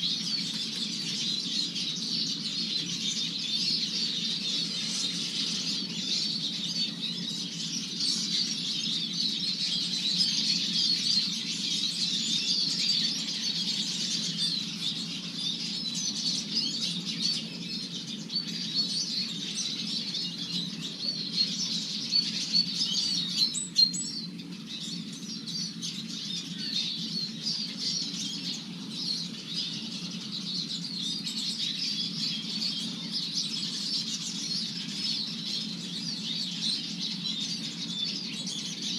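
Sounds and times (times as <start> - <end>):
songbirds chirping and twittering: 0.0 - 38.9.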